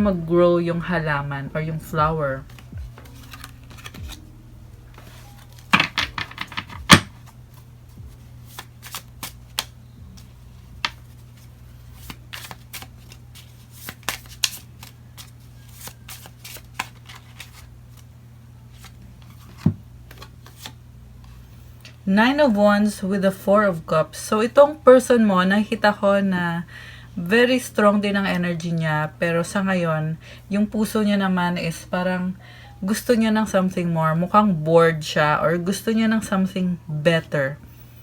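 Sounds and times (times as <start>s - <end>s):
cards clicking and flicking: 2.5s - 4.2s, 5.0s - 7.3s, 8.4s - 18.1s
cards shuffling snaps: 2.5s - 4.2s, 5.0s - 7.4s, 8.4s - 18.1s, 18.8s - 20.8s.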